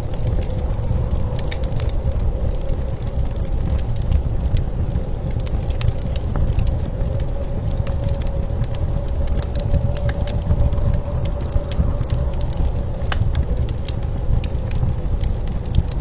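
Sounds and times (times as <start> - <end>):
blizzard wind rumbling: 0.0 - 16.0
wood fire crackling and popping: 0.0 - 16.0.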